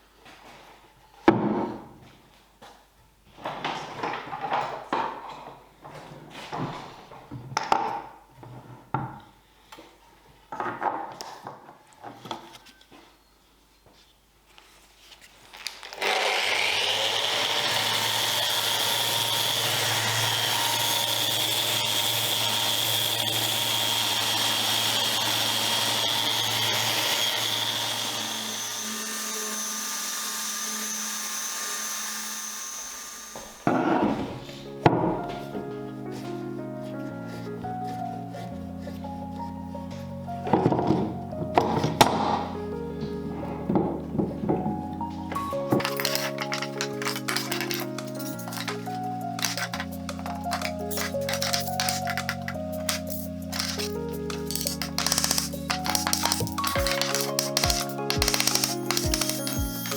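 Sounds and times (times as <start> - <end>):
power tool whining: 15.9 - 34.4, 45.3 - 59.9
wood and tools knocking: 33.3 - 35.6, 40.5 - 42.6, 43.3 - 59.9.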